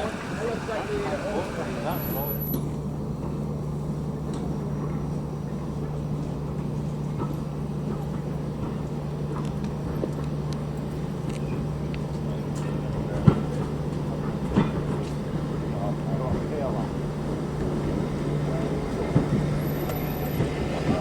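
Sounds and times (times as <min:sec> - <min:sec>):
train running hum: 0:00.0 - 0:21.0.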